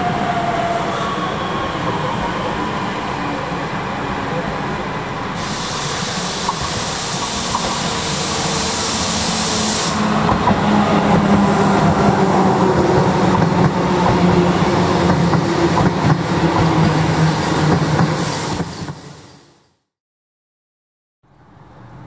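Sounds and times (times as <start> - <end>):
high hiss: 5.2 - 10.4.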